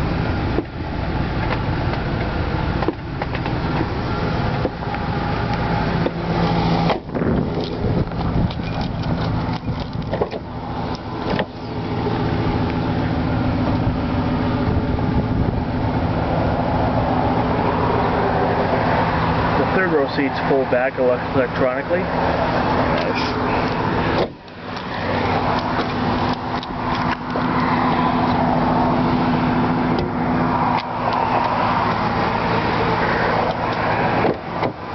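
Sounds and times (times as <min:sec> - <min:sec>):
engine idling: 0:00.0 - 0:34.9
engine clicks and knocks: 0:00.1 - 0:12.8, 0:22.4 - 0:34.9.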